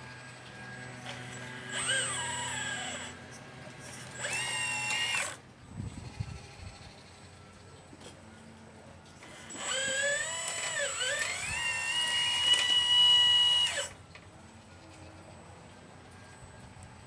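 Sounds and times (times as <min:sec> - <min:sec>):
hydraulic pump whining: 0:00.0 - 0:06.3, 0:09.2 - 0:14.2.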